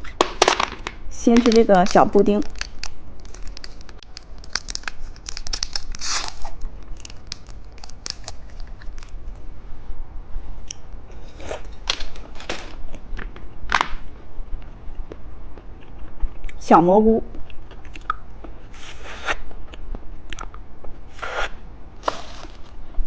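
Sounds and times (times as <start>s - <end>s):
plastic wrapping crinkling: 0.1s - 9.2s.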